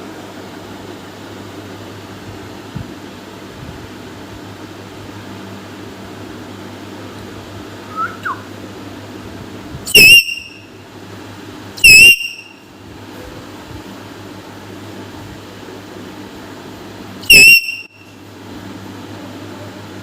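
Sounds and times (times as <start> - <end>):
fan-like hum: 0.0 - 20.0
parrot shrill calls: 7.9 - 8.5.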